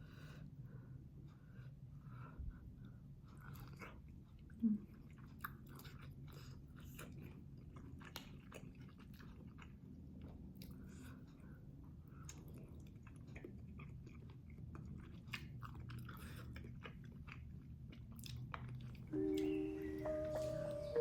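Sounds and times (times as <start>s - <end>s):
person chewing crunchy food: 3.3s - 19.6s.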